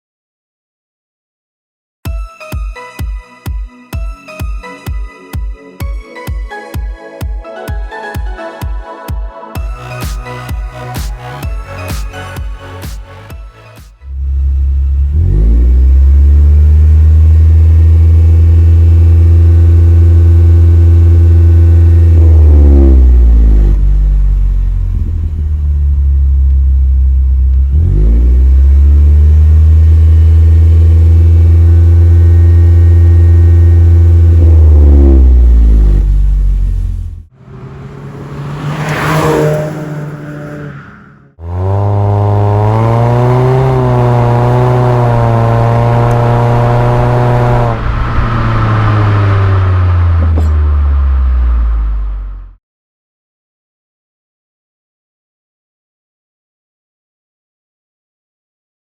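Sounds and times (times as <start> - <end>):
car engine revving: 14.0 - 52.6
brief rising and falling sound: 34.4 - 42.0, 45.2 - 52.2.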